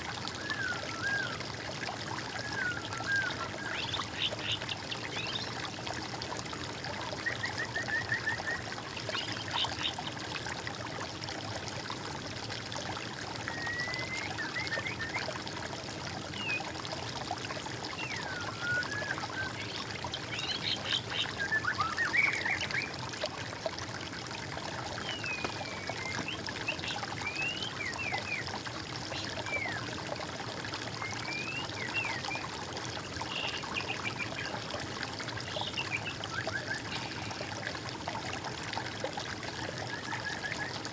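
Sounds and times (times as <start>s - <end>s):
water trickling: 0.0s - 40.9s
birds singing: 25.0s - 28.4s.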